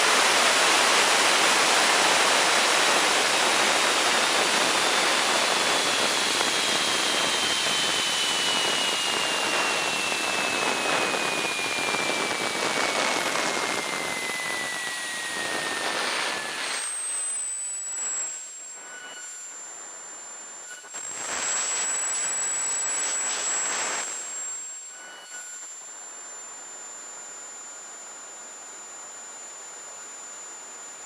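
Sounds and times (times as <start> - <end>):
jet turbine roar: 0.0 - 17.0
turbine whine falling in pitch: 0.0 - 31.0.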